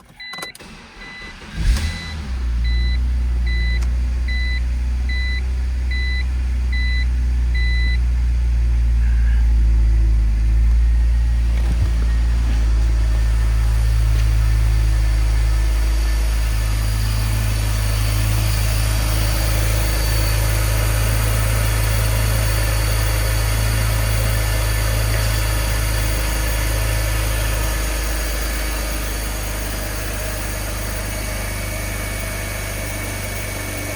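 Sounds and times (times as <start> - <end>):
car engine starting and idling: 0.0 - 33.9
warning chime beeping: 13.1 - 33.9.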